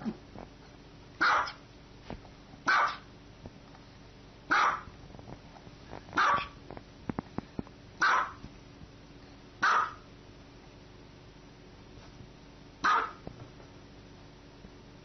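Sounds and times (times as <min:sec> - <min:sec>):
small dog barking: 0:01.2 - 0:01.6, 0:02.7 - 0:03.1, 0:04.5 - 0:04.9, 0:06.2 - 0:06.6, 0:08.0 - 0:08.4, 0:09.6 - 0:10.1, 0:12.8 - 0:13.2.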